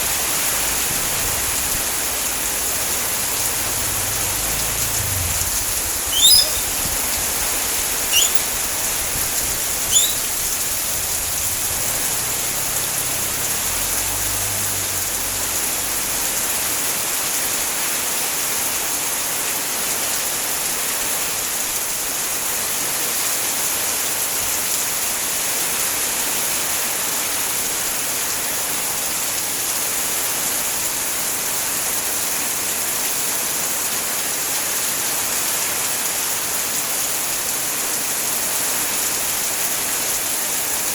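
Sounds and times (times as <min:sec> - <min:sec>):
heavy rain falling: 0:00.0 - 0:17.6
short rising chirps: 0:06.0 - 0:07.0, 0:08.0 - 0:08.6, 0:09.9 - 0:10.4.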